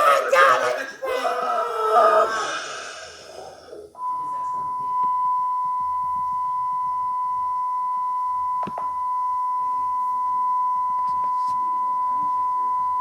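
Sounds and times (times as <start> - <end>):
steady electronic beep tone: 4.0 - 11.0.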